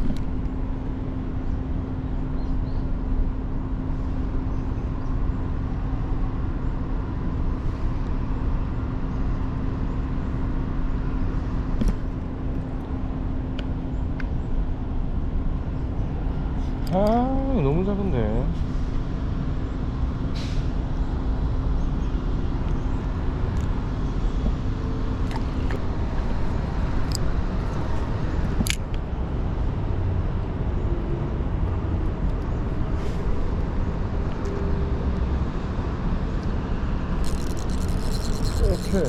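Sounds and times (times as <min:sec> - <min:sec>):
sharp clicks: 0:37.2 - 0:39.0.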